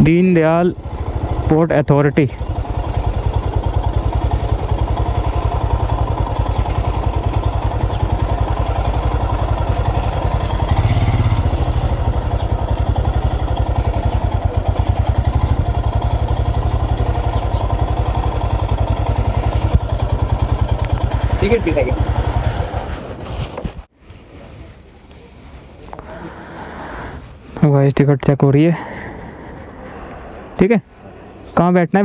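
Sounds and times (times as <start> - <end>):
motorcycle engine idling: 0.0 - 23.2.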